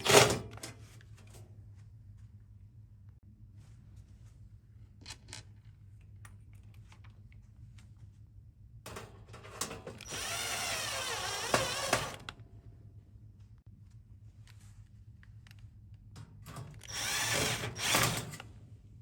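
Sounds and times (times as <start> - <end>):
power drill running: 9.9 - 12.3, 16.8 - 18.4.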